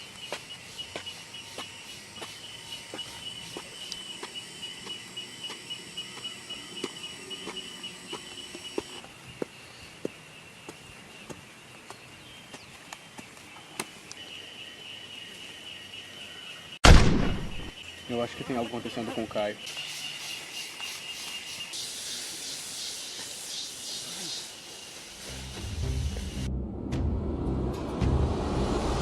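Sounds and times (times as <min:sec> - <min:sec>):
insects buzzing: 0:00.0 - 0:26.4
footsteps on forest floor: 0:00.1 - 0:14.1.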